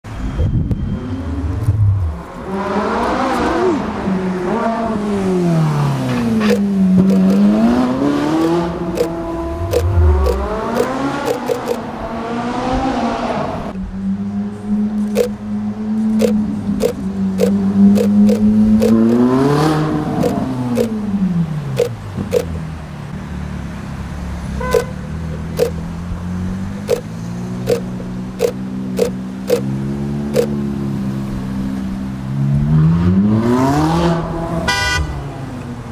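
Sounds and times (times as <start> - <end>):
car engine revving: 1.1 - 22.6, 24.6 - 35.9
short sharp clicks: 6.4 - 7.5, 8.3 - 11.8, 16.1 - 19.3, 25.5 - 25.8, 26.8 - 29.7.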